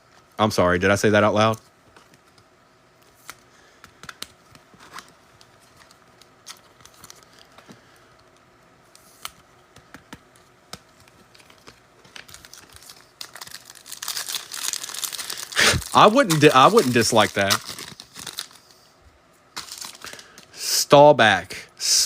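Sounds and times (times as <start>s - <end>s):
cards clicking and rustling: 1.9s - 18.6s, 19.6s - 20.5s
foil wrappers crinkling and tearing: 4.0s - 7.7s, 11.0s - 18.7s, 19.5s - 20.5s.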